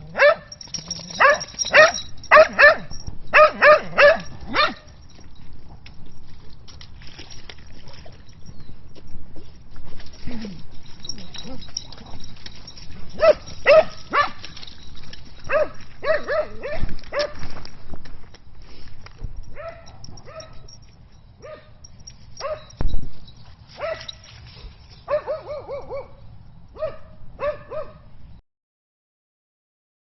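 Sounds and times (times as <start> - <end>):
dog barking: 0.1 - 0.5, 1.2 - 4.9, 13.2 - 14.4, 15.5 - 17.4, 19.6 - 20.6, 21.4 - 21.8, 22.4 - 22.8, 23.8 - 24.2, 25.1 - 26.2, 26.8 - 28.1.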